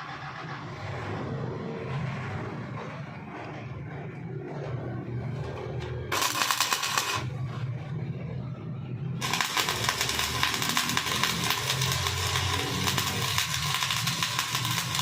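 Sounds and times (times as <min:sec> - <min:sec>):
welding arc crackling: 0:05.4 - 0:07.9, 0:09.1 - 0:15.0.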